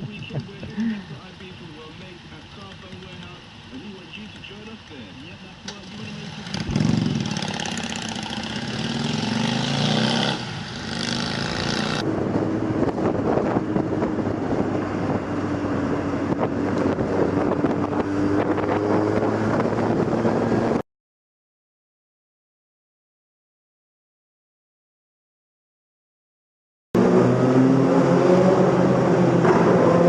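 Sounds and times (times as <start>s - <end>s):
road and wind noise: 0.0s - 20.8s, 27.0s - 30.0s
vehicle engine speeding up: 6.0s - 20.8s, 27.0s - 30.0s.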